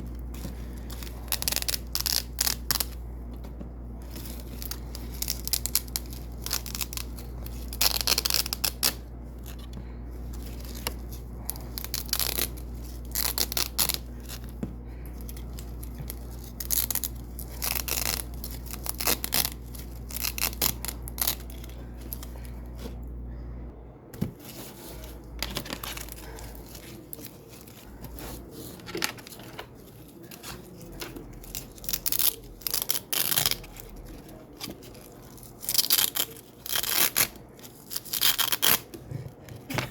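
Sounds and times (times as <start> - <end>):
velcro strips ripping: 0.8 - 3.0, 4.1 - 9.6, 11.5 - 14.4, 15.4 - 22.3, 35.4 - 38.8.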